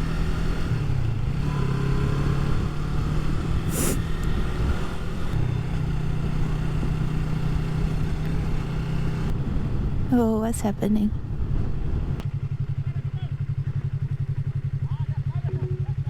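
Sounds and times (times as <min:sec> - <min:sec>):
wind and road noise: 0:00.0 - 0:14.8
motorcycle engine running: 0:00.0 - 0:16.0
short hiss: 0:03.7 - 0:04.0.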